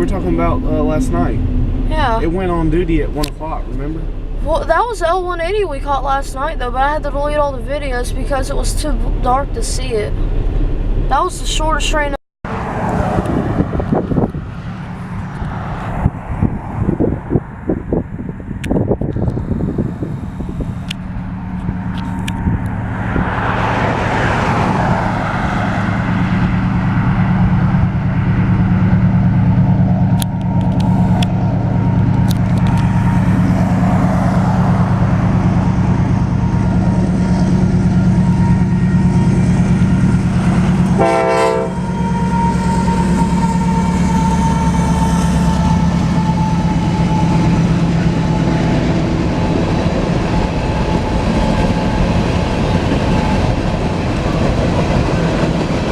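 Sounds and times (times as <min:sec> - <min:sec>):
freight train rolling noise: 0:00.0 - 0:11.8, 0:12.5 - 0:55.9
diesel locomotives droning: 0:00.0 - 0:55.9.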